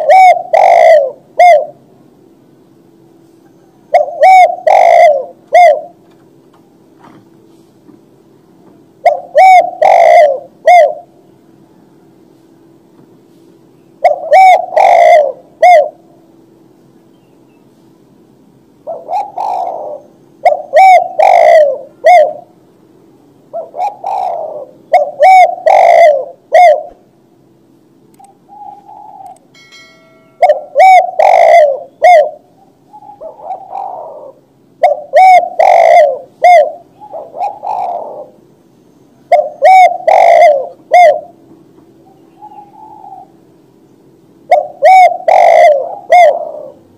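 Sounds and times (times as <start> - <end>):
dove cooing: 0.0 - 1.9, 2.8 - 6.1, 9.0 - 12.8, 14.0 - 16.4, 18.8 - 22.6, 23.5 - 27.2, 28.2 - 29.4, 30.4 - 38.5, 39.3 - 43.6, 44.4 - 46.9
faint steady hum: 0.0 - 46.9.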